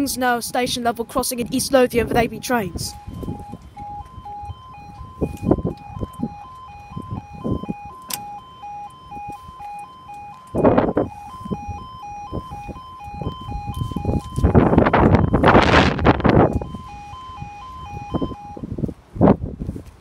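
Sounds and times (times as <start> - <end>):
two-tone crossing warning: 0.0 - 18.9
wind gusts on microphone: 0.0 - 20.0.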